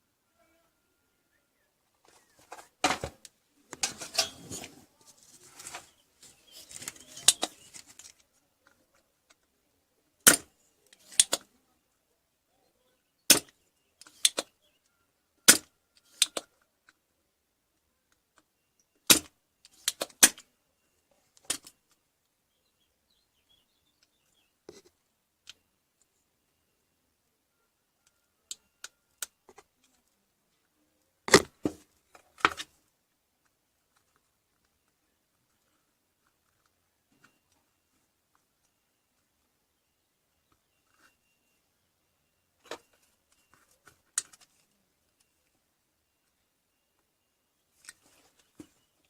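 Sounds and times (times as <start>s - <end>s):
rustling and scraping: 2.0s - 8.4s
sharp clicks and knocks: 31.3s - 32.7s.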